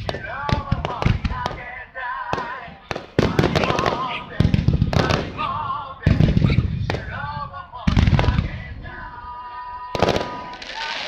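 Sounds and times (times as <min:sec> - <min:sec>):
fireworks booming: 0:00.0 - 0:09.2, 0:09.8 - 0:11.0
person singing: 0:00.1 - 0:04.4, 0:07.0 - 0:11.0.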